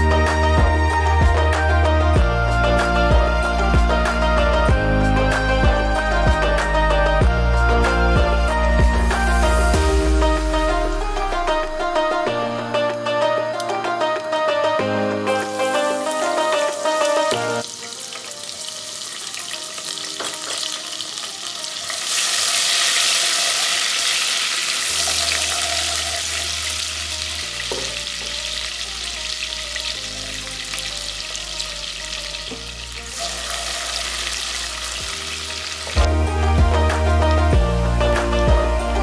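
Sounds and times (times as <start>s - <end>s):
soft background music: 0.0s - 39.0s
food sizzling in hot oil: 9.6s - 36.8s.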